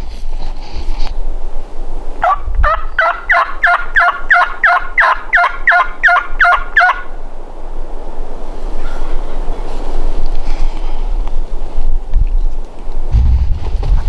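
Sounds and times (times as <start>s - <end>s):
low wind rumble: 0.0s - 14.0s
turkey yelping: 2.2s - 7.2s.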